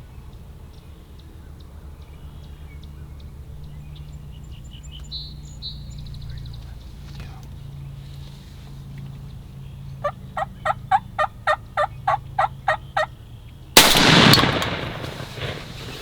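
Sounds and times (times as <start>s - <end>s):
turkey yelps: 10.0s - 13.1s
shotgun shot: 13.8s - 16.0s.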